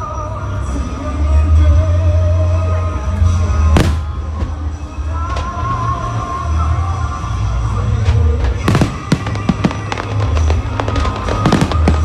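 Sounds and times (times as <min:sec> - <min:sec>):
fireworks booming: 0:03.7 - 0:06.1, 0:08.1 - 0:12.0
fireworks crackling pops: 0:03.8 - 0:04.6, 0:08.1 - 0:12.0.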